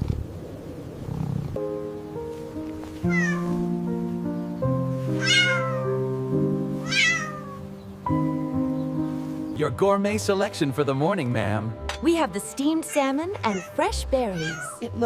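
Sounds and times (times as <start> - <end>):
soft background music chords: 1.6 - 15.0
cat meowing: 3.0 - 3.6, 5.1 - 6.0, 6.8 - 7.7, 12.9 - 14.9.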